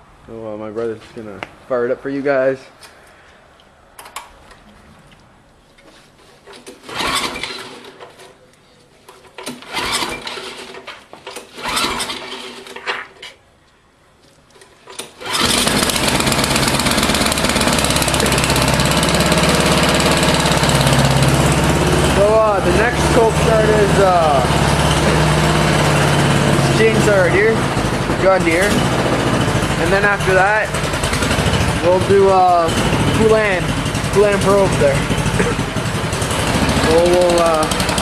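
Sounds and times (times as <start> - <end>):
snowblower engine cranking: 6.4 - 8.4, 9.2 - 13.2, 14.6 - 38.0
snowblower engine running: 15.2 - 38.0.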